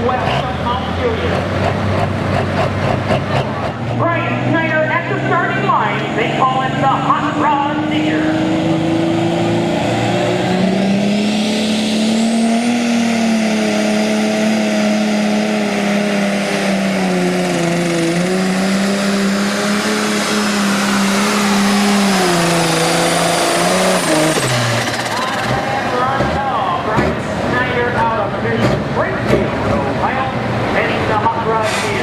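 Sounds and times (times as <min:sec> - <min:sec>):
diesel engine at high rpm: 0:00.0 - 0:32.0
turbo whine: 0:19.2 - 0:26.0.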